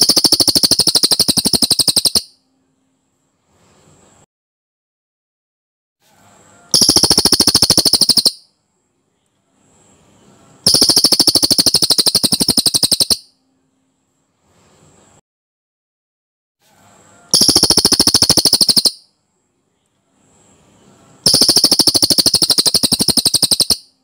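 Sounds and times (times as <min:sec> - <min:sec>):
songbird rapid trills: 0:00.0 - 0:02.3, 0:06.8 - 0:08.5, 0:10.6 - 0:13.3, 0:17.4 - 0:19.0, 0:21.2 - 0:24.0.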